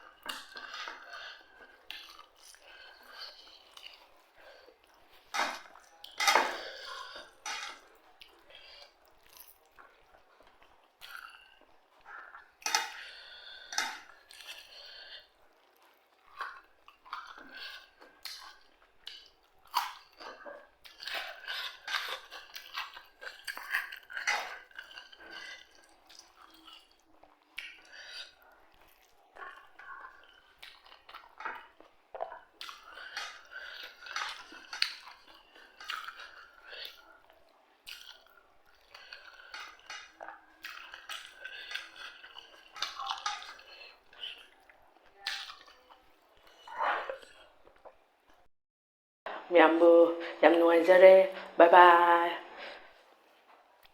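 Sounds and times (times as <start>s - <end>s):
person chewing crunchy food: 0.0s - 48.4s
cutlery clinking on a dish: 5.3s - 7.8s, 12.6s - 13.0s, 42.6s - 43.7s.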